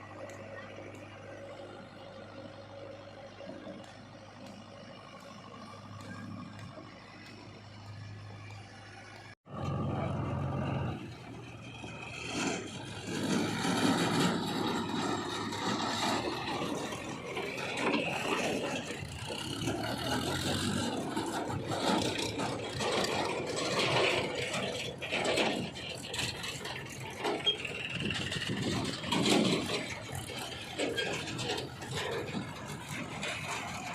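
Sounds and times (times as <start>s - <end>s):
diesel engine under load: 0.0s - 33.9s
bucket scraping and rattling in mud: 10.6s - 33.9s.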